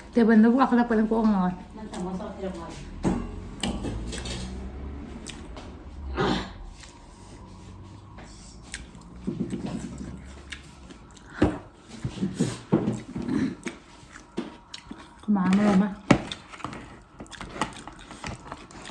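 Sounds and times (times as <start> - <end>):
chewing: 3.6 - 5.7, 6.7 - 18.9.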